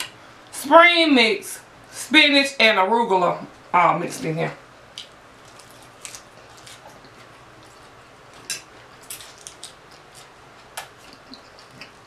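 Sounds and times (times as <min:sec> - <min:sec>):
crisp chewing of salad: 0:04.9 - 0:12.0.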